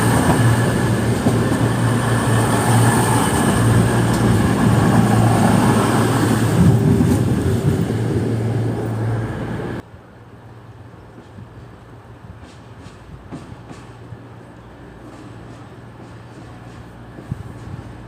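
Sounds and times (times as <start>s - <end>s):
diesel train engine drone: 0.0s - 10.9s
rail and wheel noise: 0.0s - 18.0s.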